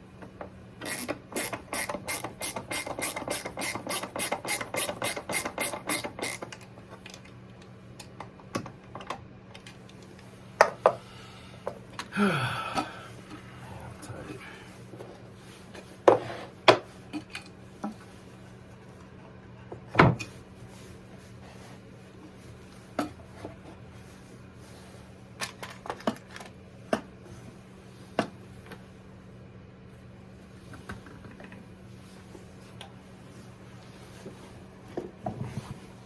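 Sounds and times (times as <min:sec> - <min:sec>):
tools clicking and knocking: 0:00.8 - 0:07.3
faint low hum: 0:11.0 - 0:15.2.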